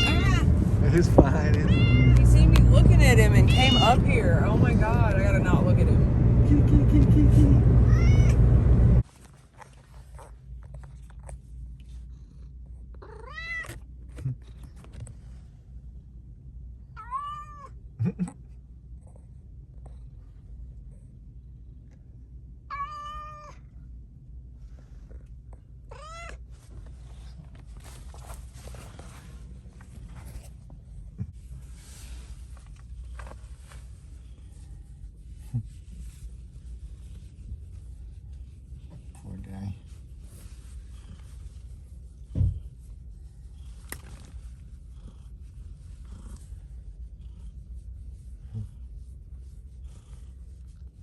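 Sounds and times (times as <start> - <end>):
cat meowing: 0.0 - 0.5, 1.4 - 2.4, 3.4 - 4.1, 7.9 - 8.4, 13.0 - 13.8, 17.0 - 17.8, 22.7 - 23.6, 25.9 - 26.4
car cabin rumble: 0.0 - 9.0
low steady rumble: 0.0 - 51.0
heavy dull thump: 42.3 - 42.7.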